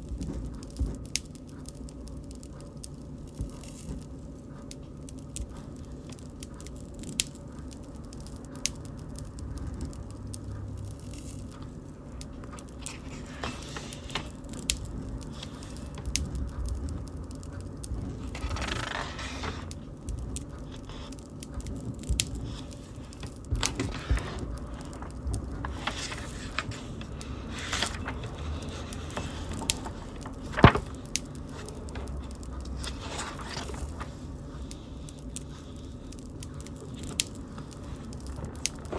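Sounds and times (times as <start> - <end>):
bonfire crackling and popping: 0.0 - 38.9
fire hissing flare-ups: 10.0 - 38.9.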